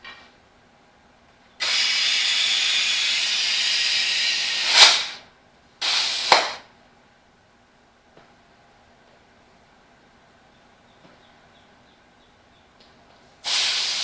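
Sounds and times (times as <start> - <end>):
compressed air hissing: 1.6 - 6.7, 13.4 - 14.0.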